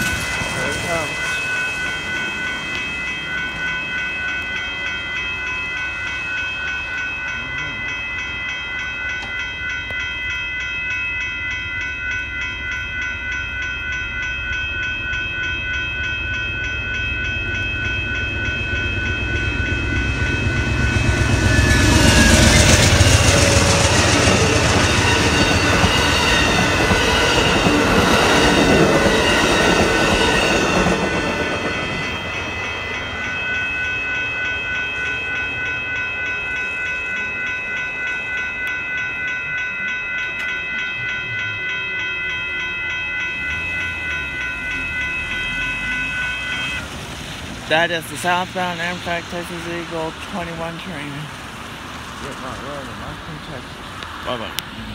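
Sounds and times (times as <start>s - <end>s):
train wheels clattering on rails: 0.0s - 7.2s, 17.6s - 39.2s
railroad crossing bells ringing: 0.0s - 54.9s.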